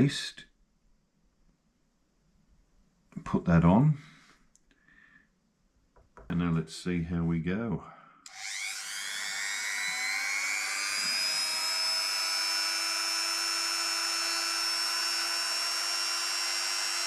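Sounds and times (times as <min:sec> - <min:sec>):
rotary multi-tool whining: 0:08.3 - 0:17.0.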